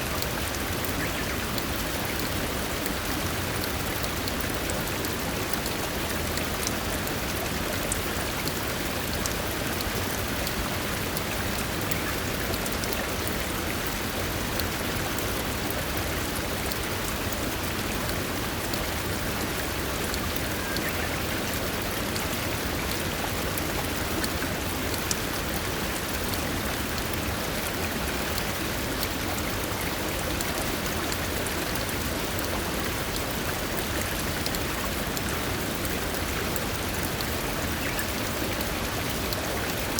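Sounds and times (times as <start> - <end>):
rain falling in forest: 0.0 - 39.9.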